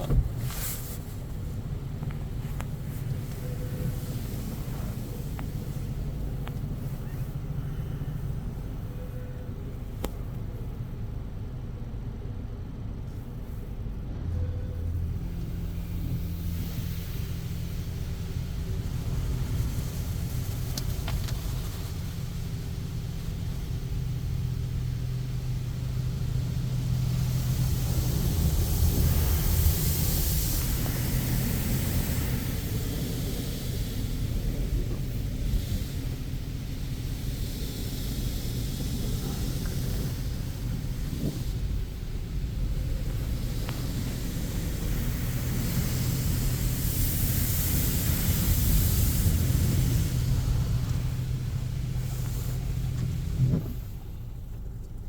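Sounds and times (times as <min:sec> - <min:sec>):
car wash hum: 0:00.0 - 0:55.0
car wash rumble: 0:00.0 - 0:55.0
high spraying hiss: 0:15.3 - 0:54.4.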